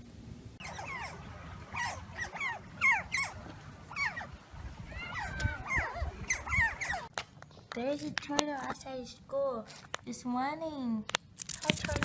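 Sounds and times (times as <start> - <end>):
small animals squeaking: 0.6 - 7.1.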